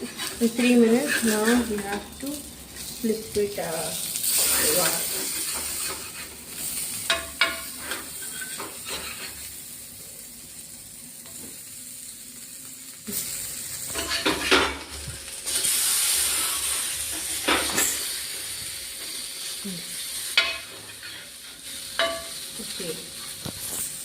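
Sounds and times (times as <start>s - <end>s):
spatula scraping a pan: 0.0s - 2.1s, 4.2s - 9.5s, 13.9s - 14.8s, 15.5s - 18.3s, 20.2s - 22.4s
food sizzling in hot oil: 0.0s - 24.0s.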